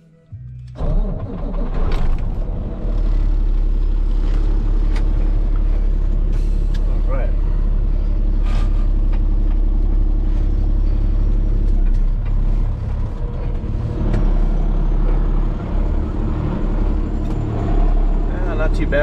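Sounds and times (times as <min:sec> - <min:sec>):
heavy truck engine droning: 0:00.0 - 0:19.0.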